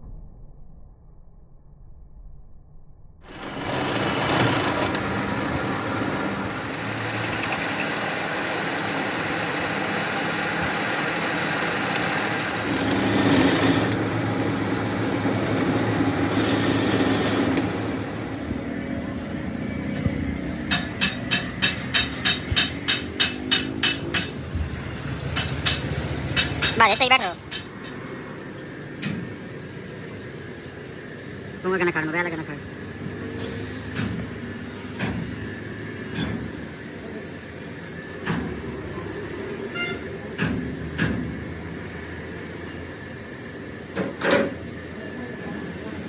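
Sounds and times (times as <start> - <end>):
machine running steadily: 3.2 - 46.0
sharp regular knocking: 20.0 - 28.1.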